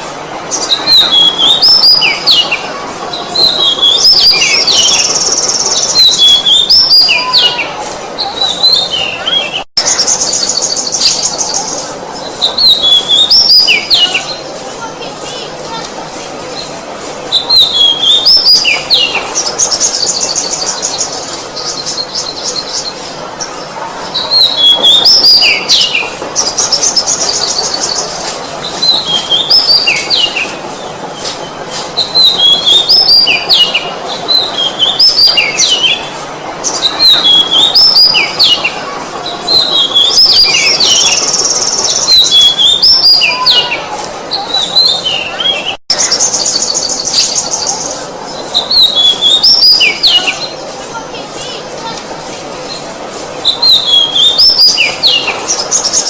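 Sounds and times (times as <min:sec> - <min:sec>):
bird singing whistled phrases: 0:00.6 - 0:02.5, 0:03.4 - 0:11.6, 0:12.4 - 0:14.4, 0:17.3 - 0:22.9, 0:32.0 - 0:36.1, 0:36.8 - 0:38.6, 0:39.5 - 0:43.8, 0:48.6 - 0:50.5, 0:53.4 - 0:56.0.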